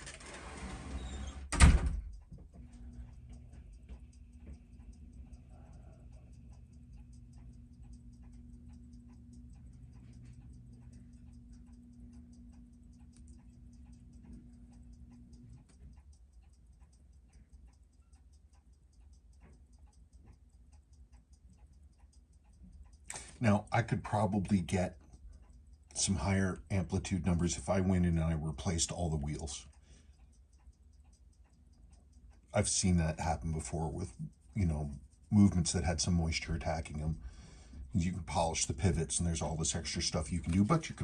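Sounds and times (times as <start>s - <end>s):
low steady hum: 0.0s - 41.0s
watch ticking: 1.6s - 41.0s.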